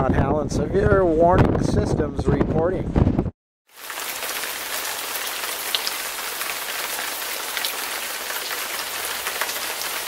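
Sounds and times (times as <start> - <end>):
steady rain falling: 3.7 - 10.0
light taps of raindrops: 3.8 - 10.0.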